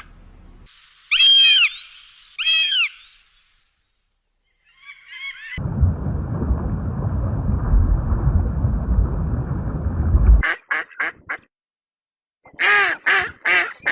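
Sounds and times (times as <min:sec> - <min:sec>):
bird calls: 0:01.0 - 0:05.6.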